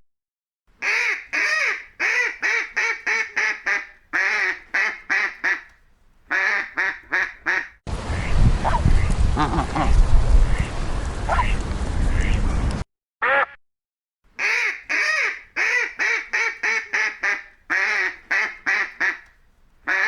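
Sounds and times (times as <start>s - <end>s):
duck quacking: 0.8s - 8.8s, 14.4s - 19.3s.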